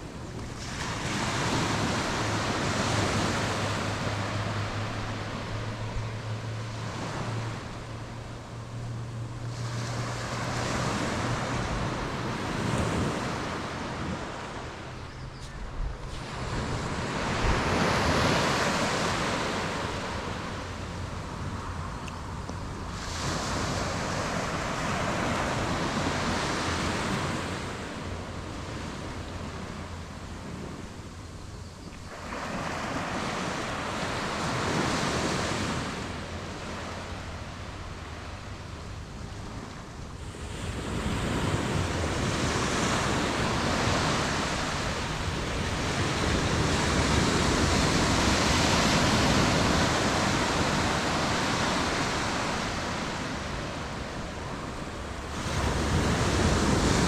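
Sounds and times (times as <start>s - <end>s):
wind on microphone: 0.0s - 31.8s, 32.6s - 57.0s
surf breaking on beach: 16.0s - 20.8s, 40.2s - 57.0s.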